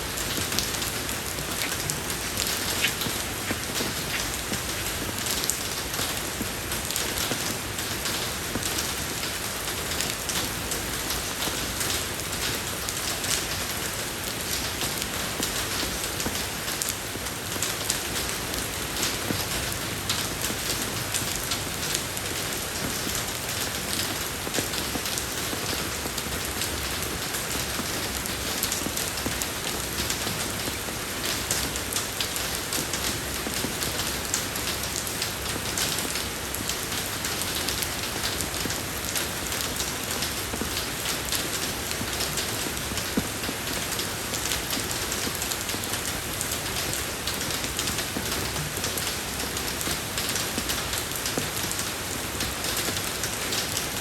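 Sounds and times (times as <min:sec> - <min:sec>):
rain falling on road: 0:00.0 - 0:54.0.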